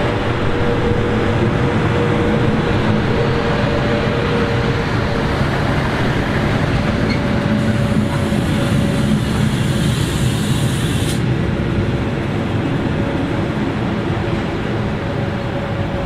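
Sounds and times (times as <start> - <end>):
train wheels rumbling on rails: 0.0 - 16.0
high hiss: 7.6 - 11.2.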